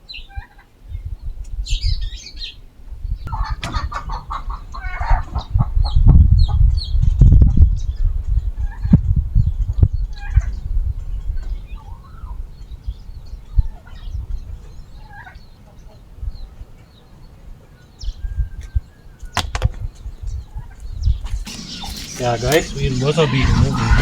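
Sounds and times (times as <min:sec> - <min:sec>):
chickens clucking: 0:03.3 - 0:06.8, 0:20.6 - 0:24.0.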